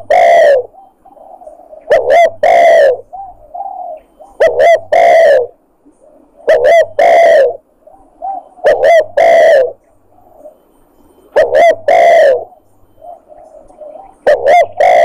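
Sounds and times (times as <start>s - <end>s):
dove cooing: 0.0s - 15.0s.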